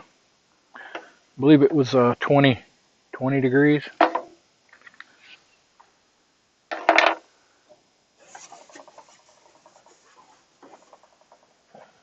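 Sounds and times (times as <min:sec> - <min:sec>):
light scratching and rubbing: 0:08.2 - 0:12.0.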